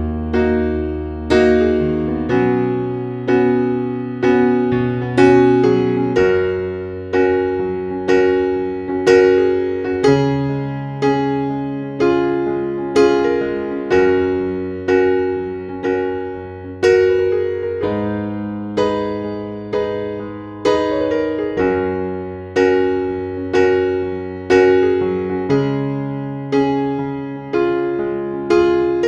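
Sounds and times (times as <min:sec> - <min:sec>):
slow piano notes: 0:00.0 - 0:29.0.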